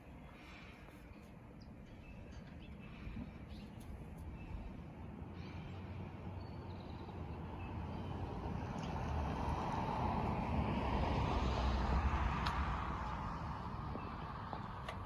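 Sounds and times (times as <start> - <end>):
vehicle passing by: 5.3 - 15.0.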